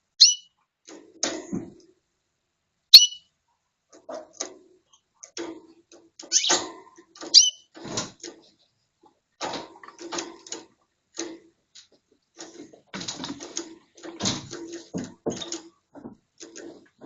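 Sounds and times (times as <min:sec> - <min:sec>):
canary chirping: 0:00.0 - 0:00.6, 0:02.9 - 0:03.3, 0:06.2 - 0:07.7
soft ticks and rustles: 0:03.5 - 0:17.0.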